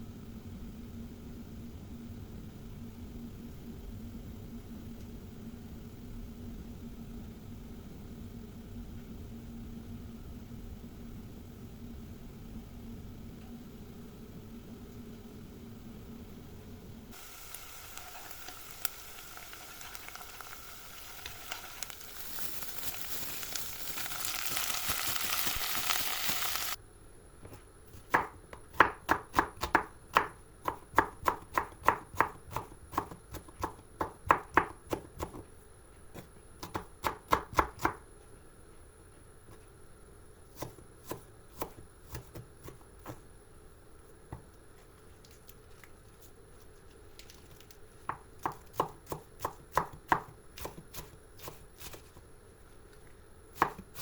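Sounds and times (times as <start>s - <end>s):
steady hiss: 17.0s - 26.8s
knife chopping on cutting board: 53.6s - 54.0s.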